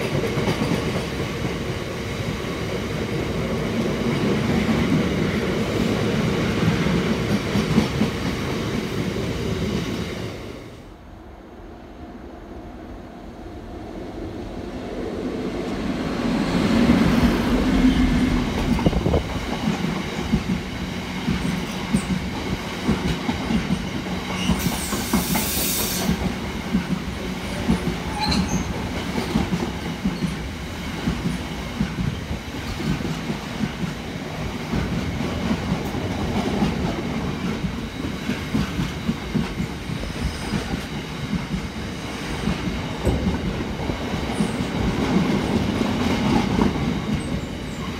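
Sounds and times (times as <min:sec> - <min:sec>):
diesel locomotive engine passing: 0:00.0 - 0:47.9
brief high hiss: 0:24.6 - 0:26.2.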